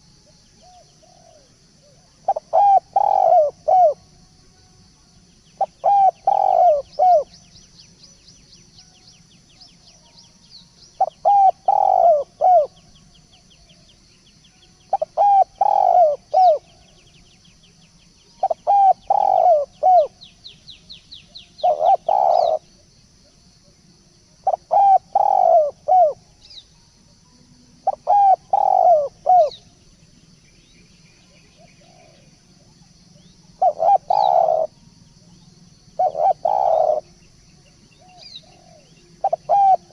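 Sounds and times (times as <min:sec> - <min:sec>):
dove cooing: 0:00.0 - 0:04.1, 0:05.6 - 0:07.3, 0:11.0 - 0:12.8, 0:14.9 - 0:16.8, 0:18.3 - 0:20.2, 0:21.6 - 0:23.8, 0:24.4 - 0:26.3, 0:27.8 - 0:29.7, 0:31.3 - 0:35.3, 0:35.9 - 0:37.2, 0:37.9 - 0:39.9.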